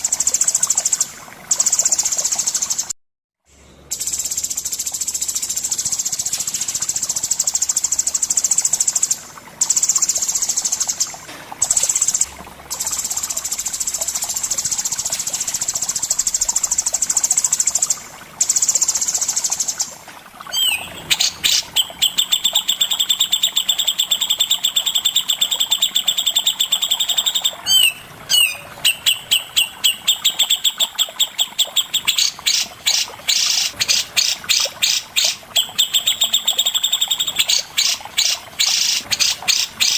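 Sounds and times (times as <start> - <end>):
bird chirping sharply: 20.5 - 30.8.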